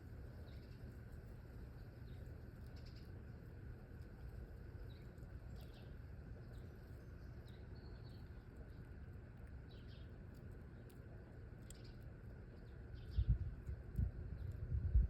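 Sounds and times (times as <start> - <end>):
low outdoor rumble: 0.0 - 15.0
small birds chirping: 0.3 - 4.0, 4.7 - 15.0.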